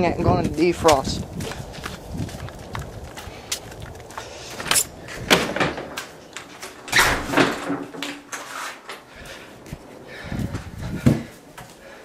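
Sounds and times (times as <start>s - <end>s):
short scraping sounds: 8.4s - 9.0s.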